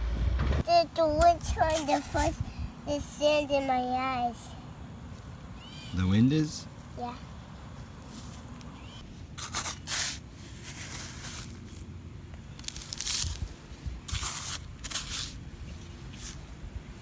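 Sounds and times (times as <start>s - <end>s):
wind rumble on microphone: 0.0s - 2.8s
sand scraping and crunching: 7.7s - 17.0s.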